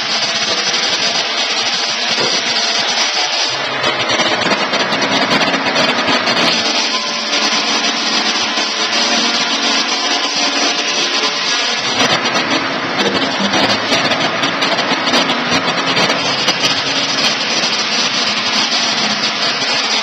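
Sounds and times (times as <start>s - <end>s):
sawmill sawing timber: 0.0s - 20.0s.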